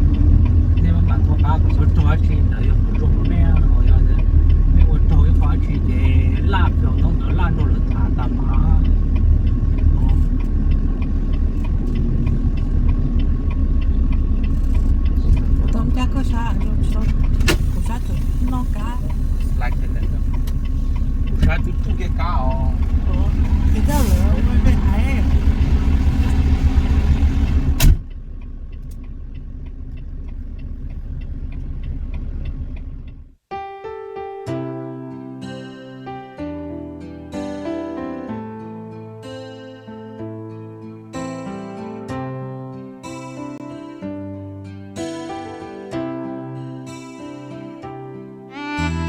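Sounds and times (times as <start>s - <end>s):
light regular ticking: 0.0s - 33.4s
truck engine and road noise: 0.0s - 33.5s, 48.4s - 49.0s
vehicle rumble: 0.0s - 33.5s
guitar music: 1.8s - 27.8s, 33.5s - 49.0s.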